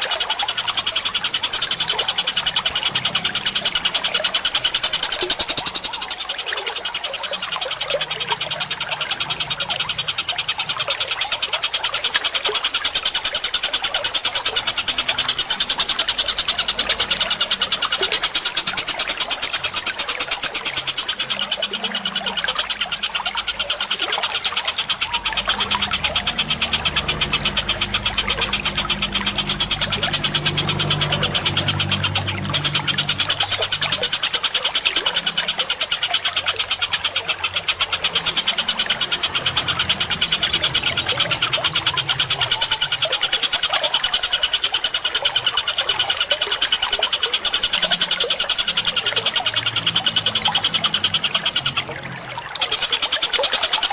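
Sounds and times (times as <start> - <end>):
chattering bird calls: 0.0 - 53.9
running water: 0.0 - 53.9.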